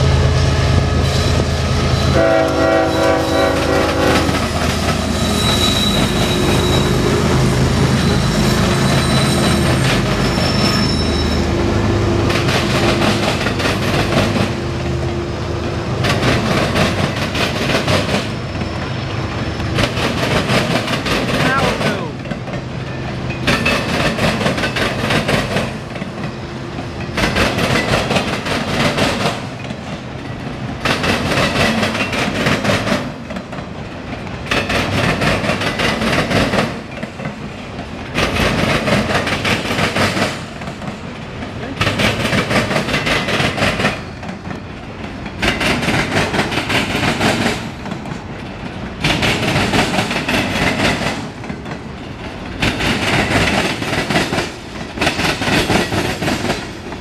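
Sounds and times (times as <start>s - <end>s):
train wheels clattering: 12.2s - 14.7s, 16.0s - 57.0s.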